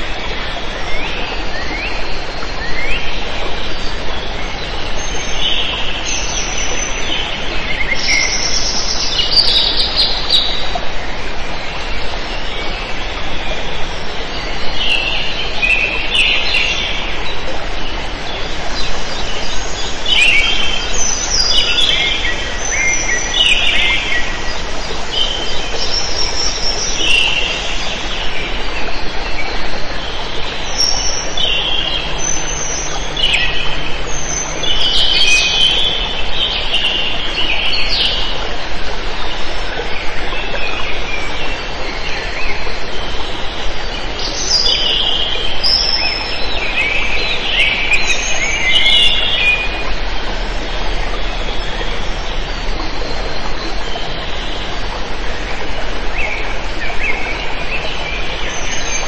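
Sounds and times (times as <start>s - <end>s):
steady background hiss: 4.5s - 38.1s
birds chirping and trilling: 14.4s - 38.2s.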